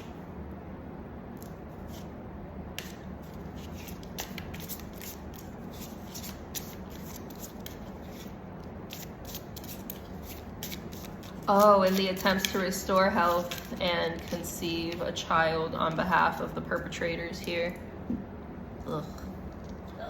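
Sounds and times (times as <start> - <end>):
steady low hum: 0.0 - 20.0
cards being shuffled: 2.8 - 15.0.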